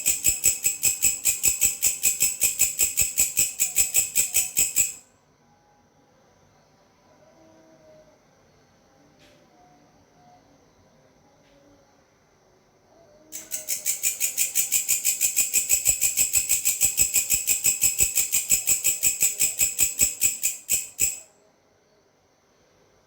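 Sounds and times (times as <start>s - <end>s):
grasshopper stridulating: 0.0s - 5.0s, 13.4s - 21.3s.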